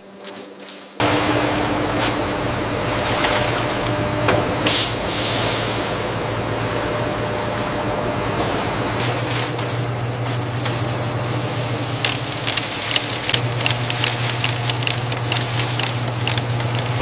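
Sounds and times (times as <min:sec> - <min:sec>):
factory machinery humming: 0:01.0 - 0:17.0
hiss bursts: 0:04.7 - 0:06.2.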